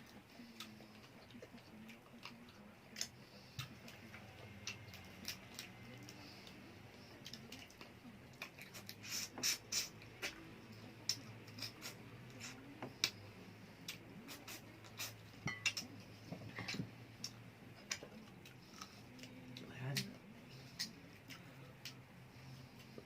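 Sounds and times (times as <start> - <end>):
cutlery clinking on plates: 15.4 - 15.9.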